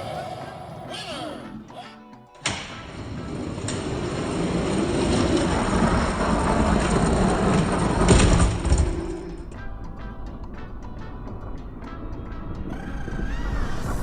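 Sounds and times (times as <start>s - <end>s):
toy truck wheels rumbling on track: 3.0s - 9.6s.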